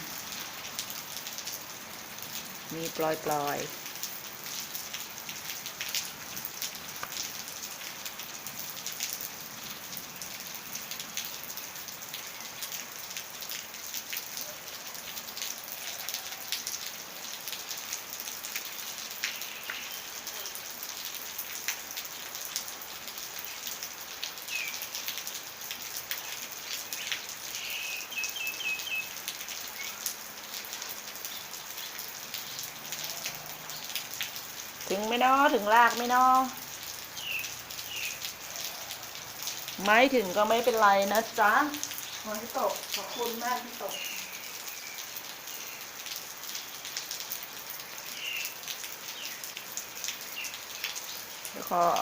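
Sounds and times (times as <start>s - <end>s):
light rain falling: 0.0s - 52.0s
raindrops ticking on surfaces: 0.0s - 52.0s
bird chirping: 26.2s - 30.1s, 37.2s - 38.2s, 43.1s - 45.9s.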